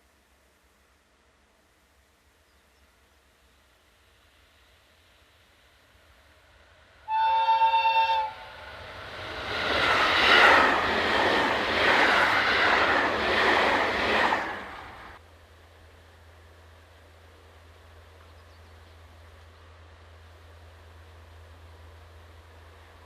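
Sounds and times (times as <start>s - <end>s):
freight train passing: 3.4s - 23.0s
locomotive horn blast: 7.0s - 8.6s.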